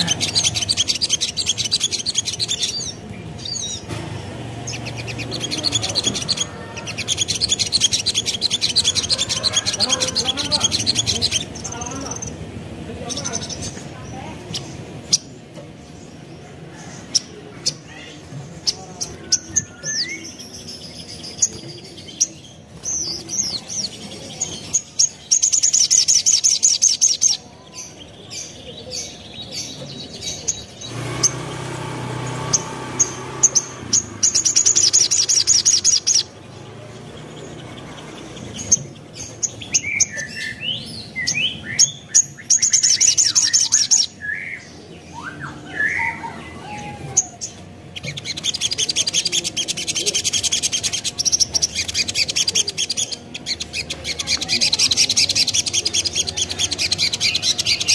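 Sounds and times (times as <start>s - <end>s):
sharp high bird chirps and clicks: 0.0s - 3.9s, 4.6s - 9.4s, 32.4s - 36.4s, 47.4s - 57.9s
fast high bird trilling: 4.6s - 12.4s, 29.5s - 36.4s.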